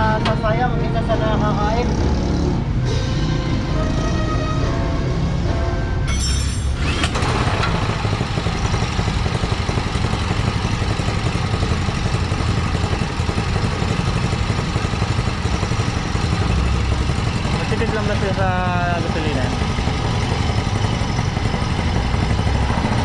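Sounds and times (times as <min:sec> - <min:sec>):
small gasoline engine running: 0:06.8 - 0:23.0.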